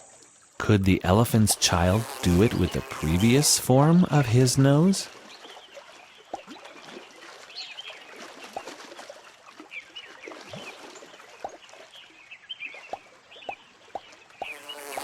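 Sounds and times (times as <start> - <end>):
trickling water: 0.0 - 15.0
drip-like plops: 6.2 - 7.4, 8.1 - 9.6
small birds chirping: 9.7 - 15.0.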